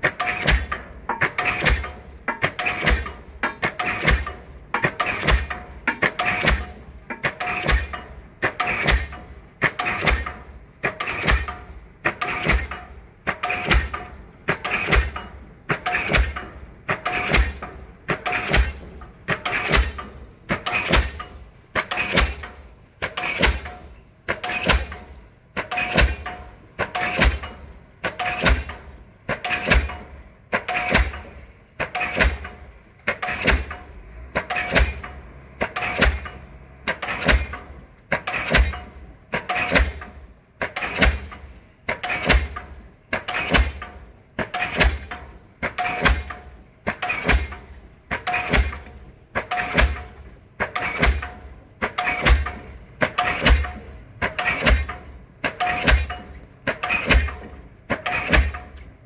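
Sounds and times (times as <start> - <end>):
pile hammer ringing blows: 40.6 - 58.9.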